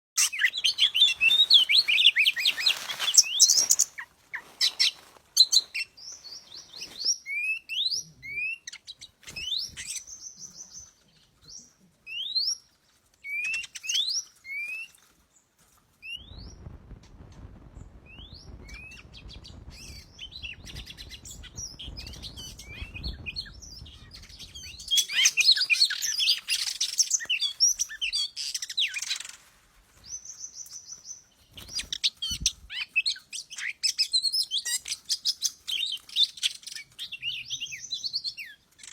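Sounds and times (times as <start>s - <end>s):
low rumble: 16.2s - 24.9s
bird chattering: 18.6s - 29.4s.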